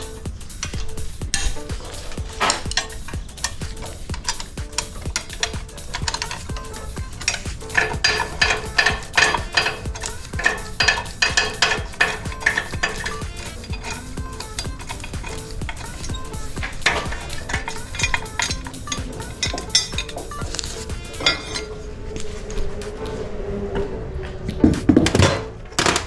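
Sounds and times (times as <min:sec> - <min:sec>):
metal tools clinking on engine parts: 0:00.0 - 0:21.8.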